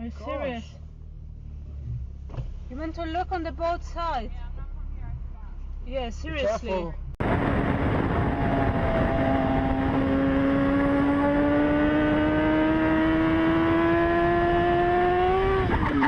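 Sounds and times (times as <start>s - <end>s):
road noise: 0.0s - 16.0s
vehicle engine accelerating: 7.0s - 16.0s.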